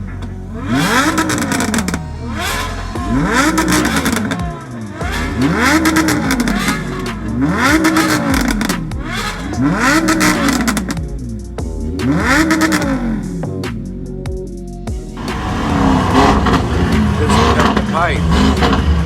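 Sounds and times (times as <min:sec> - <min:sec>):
exhaust crackling pops: 0:00.0 - 0:11.2, 0:15.2 - 0:19.0
car engine revving: 0:00.0 - 0:19.0.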